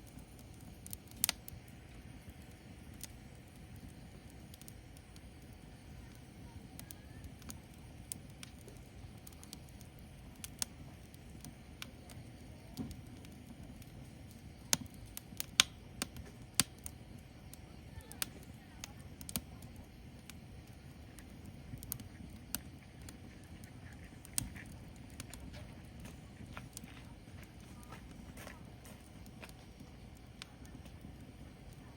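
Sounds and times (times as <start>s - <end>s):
firewood crackling and popping: 0.0s - 31.9s
low rumble of flame: 0.0s - 31.9s.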